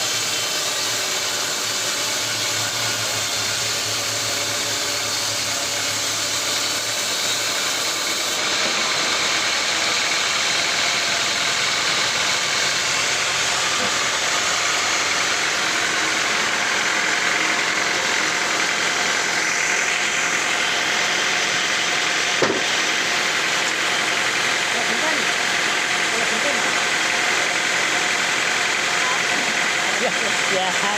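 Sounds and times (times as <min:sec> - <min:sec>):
sawmill machinery running: 0:00.0 - 0:30.9
sharp knock: 0:22.4 - 0:22.7.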